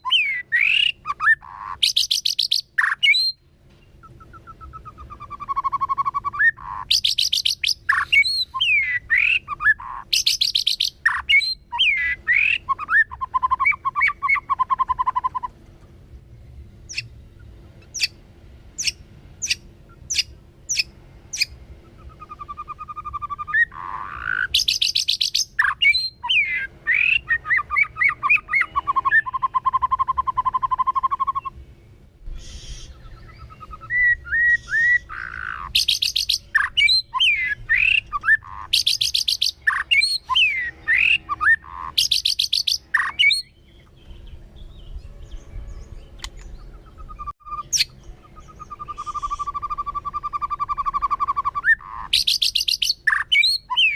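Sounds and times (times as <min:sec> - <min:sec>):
bird singing whistled phrases: 0:00.0 - 0:03.4, 0:04.0 - 0:15.5, 0:18.8 - 0:31.6, 0:32.4 - 0:53.9
sharp bird ticks: 0:00.6 - 0:03.2, 0:04.0 - 0:08.3, 0:10.1 - 0:11.4, 0:18.8 - 0:21.6, 0:22.4 - 0:25.9, 0:34.6 - 0:36.8, 0:46.2 - 0:46.6.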